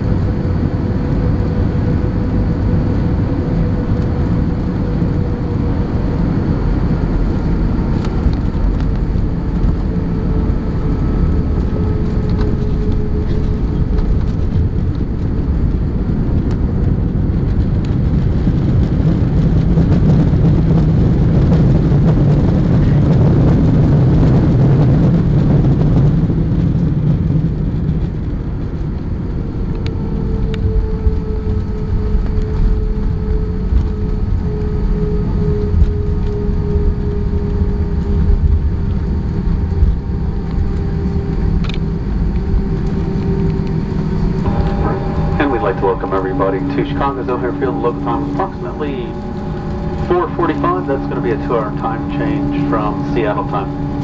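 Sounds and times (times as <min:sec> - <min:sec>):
aircraft cabin engine rumble: 0:00.0 - 0:54.0
faint tone: 0:41.9 - 0:54.0.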